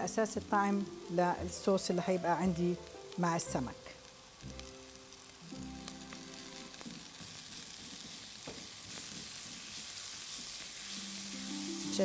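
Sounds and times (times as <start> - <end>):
onions sizzling in oil: 0.0 - 12.0
spatula stirring: 6.8 - 11.3.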